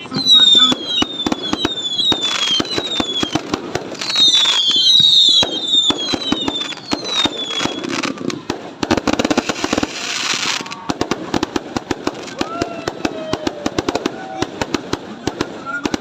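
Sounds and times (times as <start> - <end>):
firework whistle falling: 0.0 - 8.3
fireworks bangs and crackles: 0.0 - 16.0.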